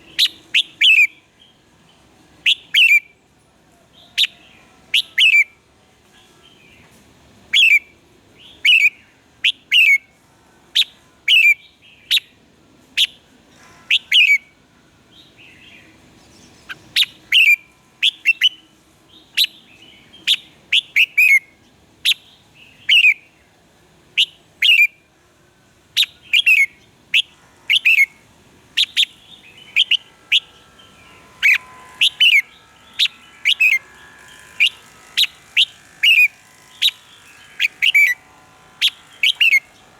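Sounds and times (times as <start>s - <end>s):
bird singing sharp notes: 28.8s - 39.9s.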